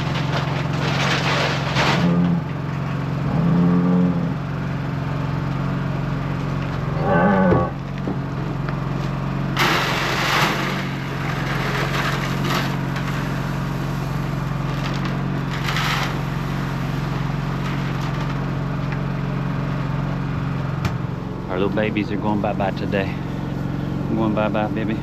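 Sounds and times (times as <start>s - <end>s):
scraping and rustling: 0.0s - 2.4s
engine idling: 7.7s - 25.0s.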